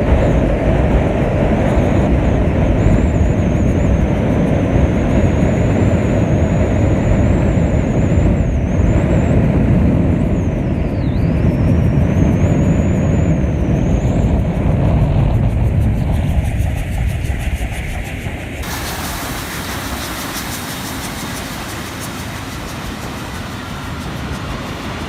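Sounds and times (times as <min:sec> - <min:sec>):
thin high whine: 0:00.0 - 0:25.0
train rumbling by: 0:00.0 - 0:25.0.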